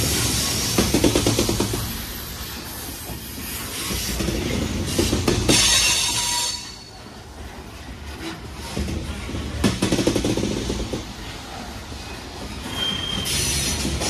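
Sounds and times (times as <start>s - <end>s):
steel wheels rumbling on rail: 0.0s - 14.0s
wheels clacking on rail joints: 0.0s - 14.0s
faint wheel squeal: 12.0s - 14.0s.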